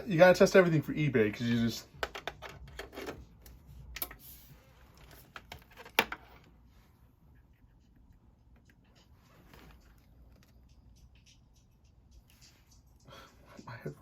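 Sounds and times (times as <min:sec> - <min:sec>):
headphone cord clicks and rustles: 0:02.0 - 0:04.2.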